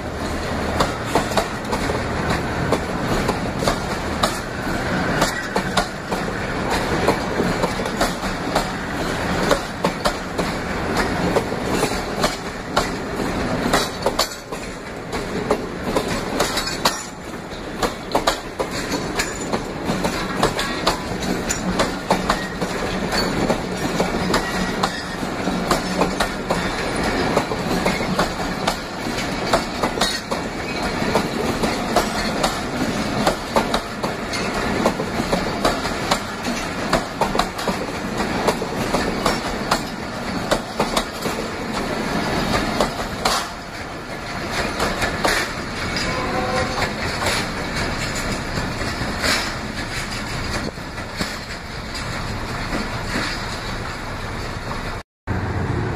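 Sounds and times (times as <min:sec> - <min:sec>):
train wheels clickety-clack: 0:00.0 - 0:55.0.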